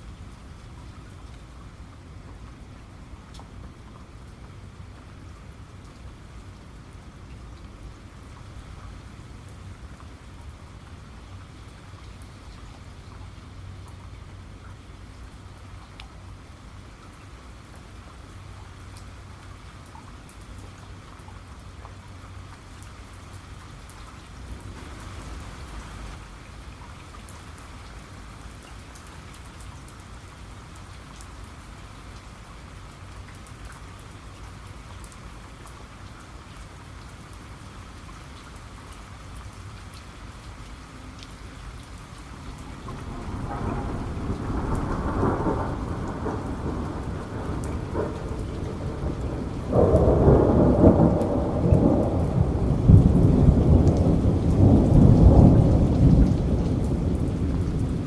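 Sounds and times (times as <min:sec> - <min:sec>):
heavy rain: 0:00.0 - 0:58.0
thunder rumbling: 0:42.5 - 0:58.0.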